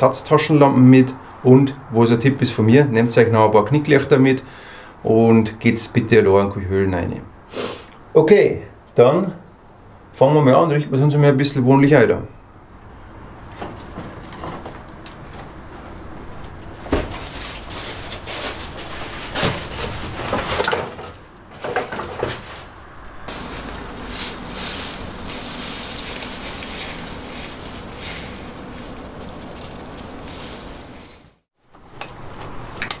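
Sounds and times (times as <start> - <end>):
scraping: 13.4 - 31.5
rustling and handling noises: 13.5 - 32.6.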